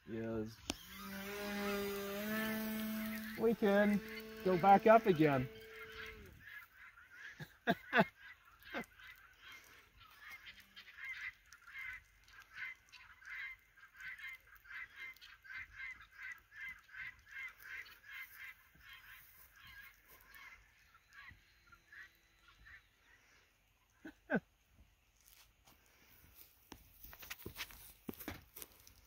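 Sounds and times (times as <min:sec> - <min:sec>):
distant honking bird calls: 0:00.8 - 0:23.5.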